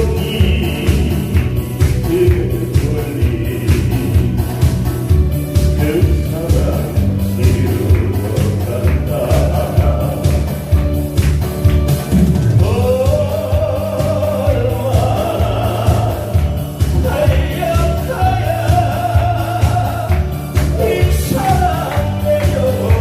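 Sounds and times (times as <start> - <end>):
person singing long notes: 0.0 - 4.6, 12.6 - 23.0
backing track with steady beat: 0.0 - 23.0.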